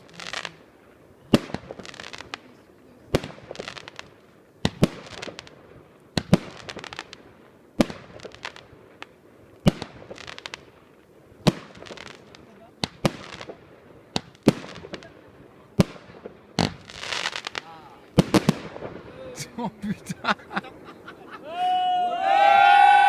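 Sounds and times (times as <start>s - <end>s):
fireworks bangs with crackle: 0.0s - 19.2s.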